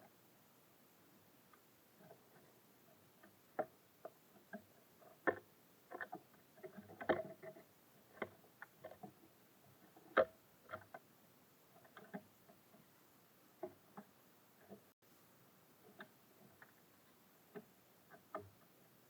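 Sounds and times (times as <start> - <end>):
birds pecking at a feeder: 15.7 - 19.0.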